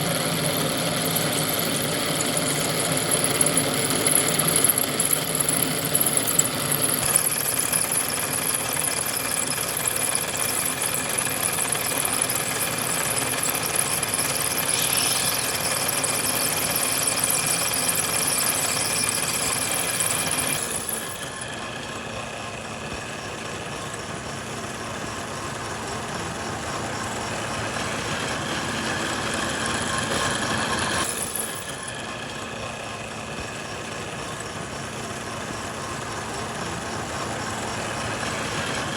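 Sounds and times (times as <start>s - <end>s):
machinery humming and hissing: 11.0s - 38.9s.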